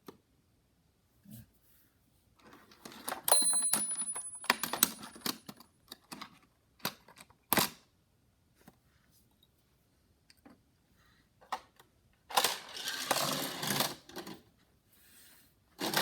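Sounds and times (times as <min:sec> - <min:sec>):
toy cars clicking and clattering: 0:02.8 - 0:07.8, 0:11.5 - 0:14.5, 0:15.8 - 0:16.0
faint high steady ring: 0:03.3 - 0:05.3.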